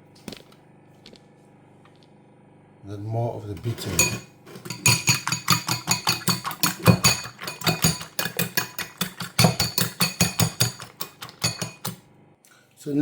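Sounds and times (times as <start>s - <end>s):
fork clinking against bowl: 3.9s - 12.0s.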